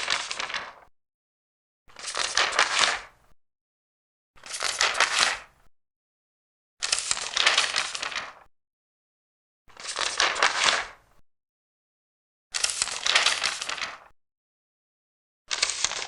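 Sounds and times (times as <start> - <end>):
paper pages turning: 0.0 - 0.8, 1.9 - 3.1, 4.4 - 5.5, 6.8 - 8.5, 9.8 - 10.9, 12.6 - 14.1, 15.5 - 16.0.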